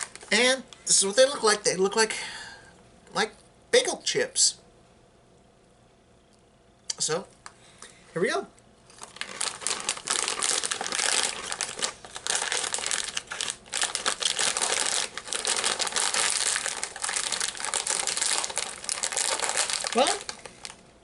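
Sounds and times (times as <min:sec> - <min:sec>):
crunchy crisps being chewed: 0:08.9 - 0:20.8.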